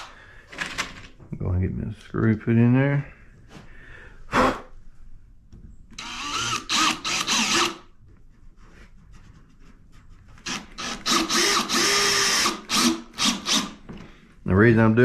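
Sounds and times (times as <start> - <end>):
power drill driving a screw: 6.0 - 7.8, 10.4 - 13.8.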